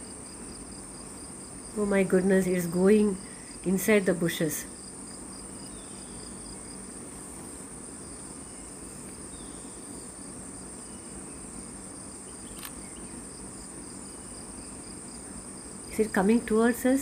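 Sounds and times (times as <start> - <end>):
crickets chirping: 0.0 - 17.0
faint background hiss: 0.0 - 17.0
small click: 12.5 - 12.8.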